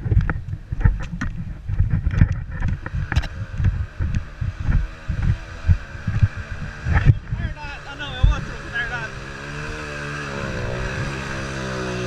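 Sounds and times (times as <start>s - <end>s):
dirt bike engine running: 0.0s - 12.0s
wind buffeting microphone: 0.0s - 12.0s.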